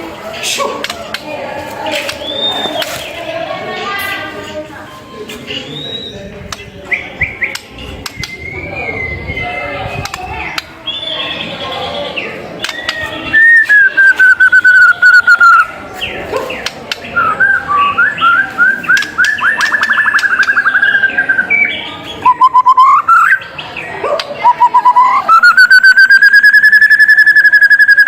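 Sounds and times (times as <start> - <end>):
songbird whistling: 5.7 - 6.2, 6.9 - 9.7, 12.6 - 15.7, 17.2 - 23.6, 24.4 - 28.0.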